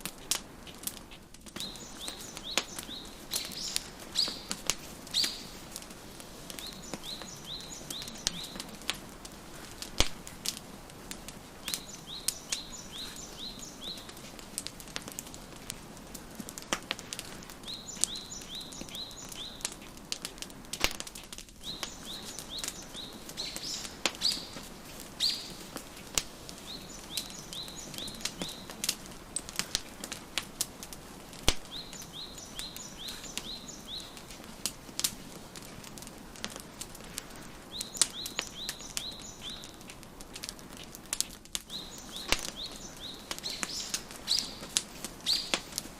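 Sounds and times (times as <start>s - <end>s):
wood fire crackling and popping: 0.0s - 45.9s
songbird chirping: 1.6s - 14.7s, 17.3s - 19.8s, 21.6s - 29.5s, 31.6s - 34.6s, 37.5s - 39.9s, 41.6s - 45.9s.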